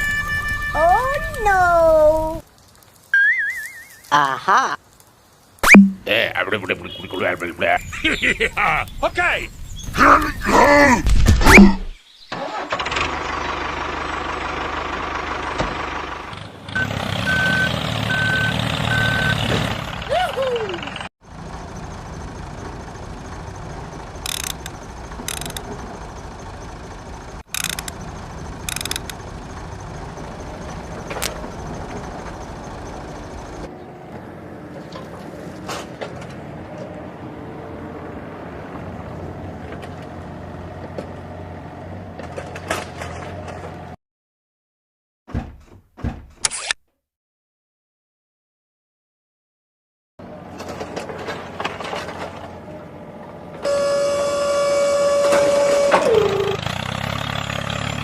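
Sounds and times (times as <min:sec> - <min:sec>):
short high beeps: 0:05.6 - 0:06.0
model diesel engine running: 0:12.4 - 0:19.3, 0:20.7 - 0:33.7.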